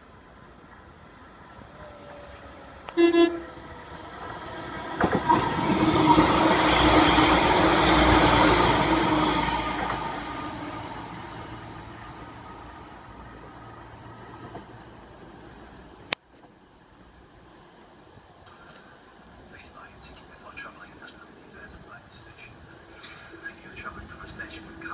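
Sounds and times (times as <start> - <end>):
train rushing past: 0.0 - 16.1, 21.4 - 24.9
train horn blast: 2.8 - 3.6
train wheel clicks: 4.1 - 6.8.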